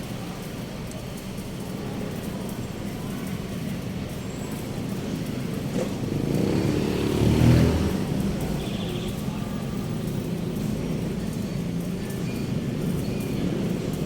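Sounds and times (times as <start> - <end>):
background traffic: 0.0 - 14.0
vehicle passing close by: 5.2 - 9.3.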